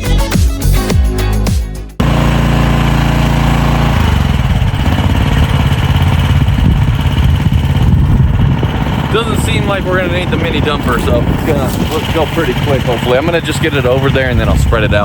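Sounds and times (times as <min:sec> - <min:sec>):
dance music: 0:00.0 - 0:02.0
skid steer engine running: 0:02.0 - 0:15.0.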